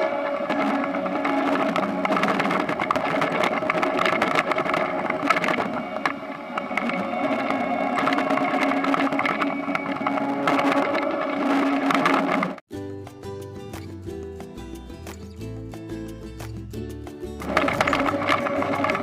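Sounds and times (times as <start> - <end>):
harvester engine drone: 0.0 - 12.6
machinery rattling and clattering: 0.0 - 12.6, 17.4 - 19.0.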